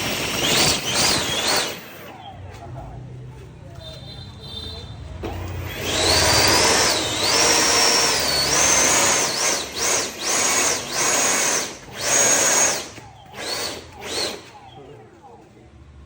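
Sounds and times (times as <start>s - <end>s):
small electric motor whining: 0.0s - 2.1s, 5.3s - 14.7s.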